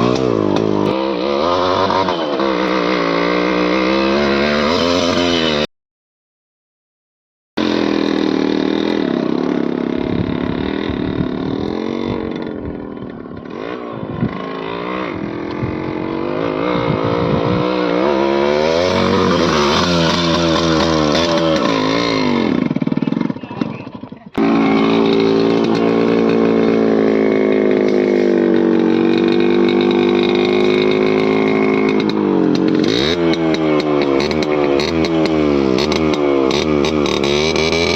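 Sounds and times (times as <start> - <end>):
motorcycle engine revving: 0.0 - 5.7, 7.6 - 37.9.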